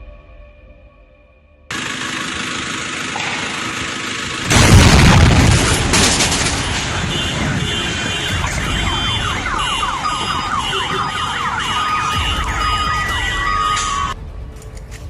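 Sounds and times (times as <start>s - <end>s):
loud rumbling noise: 1.7s - 14.5s
electronic alarms and sirens: 4.5s - 14.2s
beeping tones: 8.2s - 14.2s.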